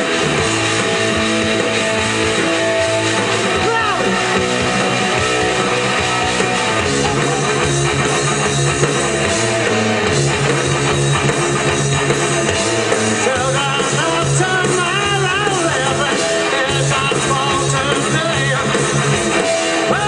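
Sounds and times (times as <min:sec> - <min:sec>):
bass guitar: 0:00.0 - 0:20.0
distorted electric guitar: 0:00.0 - 0:20.0
drum kit: 0:00.0 - 0:20.0
person singing: 0:13.0 - 0:20.0.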